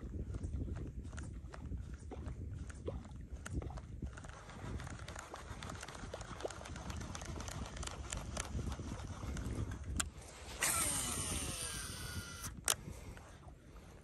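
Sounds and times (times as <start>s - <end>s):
wind rumble on microphone: 0.0s - 14.0s
fishing reel ticking: 4.1s - 13.3s
reel spool whirring out: 5.8s - 12.8s.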